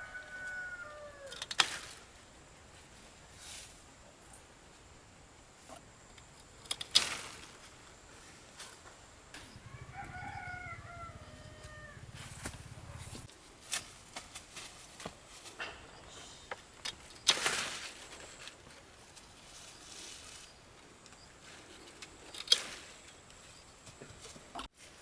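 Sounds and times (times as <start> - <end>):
rooster crowing: 0.0 - 1.4, 9.4 - 13.3.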